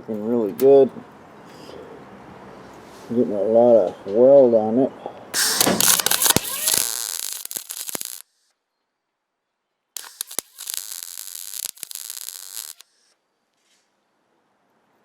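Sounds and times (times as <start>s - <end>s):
welder crackling: 5.4s - 8.3s, 10.0s - 13.1s.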